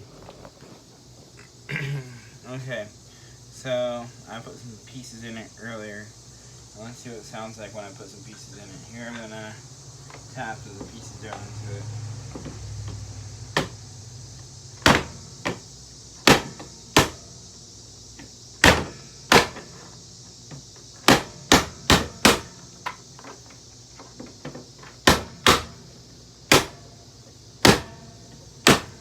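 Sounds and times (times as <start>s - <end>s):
sharp knocks on vacuum cleaner: 13.6s - 13.8s, 14.8s - 17.3s, 18.6s - 19.9s, 20.5s - 23.0s, 24.4s - 25.8s, 26.5s - 26.9s, 27.6s - 29.0s.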